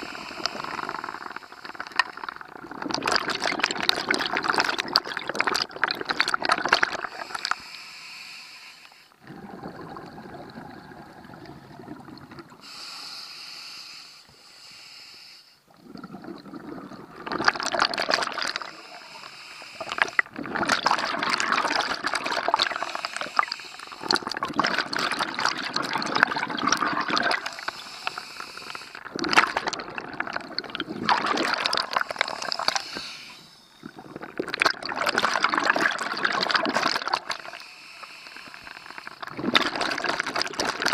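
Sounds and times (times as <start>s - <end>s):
exhaled bubbles rushing: 0.0s - 7.4s, 9.2s - 12.6s, 15.7s - 19.0s, 19.8s - 27.8s, 29.0s - 32.9s, 33.8s - 37.6s, 38.8s - 40.9s
diver breathing through regulator: 12.5s - 15.6s, 18.6s - 20.3s, 22.6s - 24.3s, 27.4s - 29.2s, 31.9s - 34.0s, 37.4s - 39.3s.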